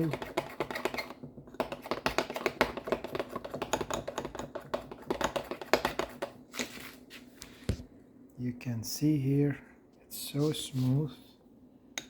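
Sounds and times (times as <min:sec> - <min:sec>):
spoon knocking and scraping a bowl: 0:00.0 - 0:06.4.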